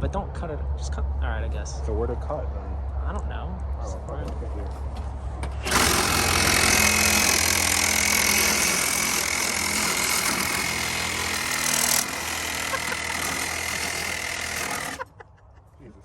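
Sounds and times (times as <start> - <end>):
power saw cutting: 5.6 - 15.1.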